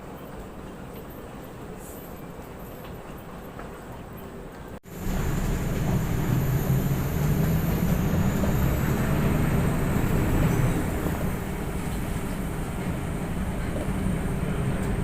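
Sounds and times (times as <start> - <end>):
aircraft engine rumble: 4.8 - 15.0.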